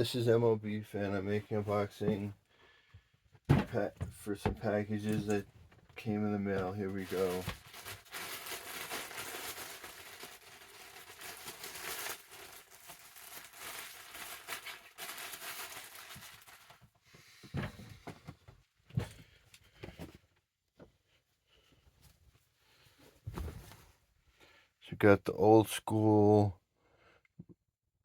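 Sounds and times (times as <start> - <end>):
packaging torn and crinkled: 6.8 - 16.8.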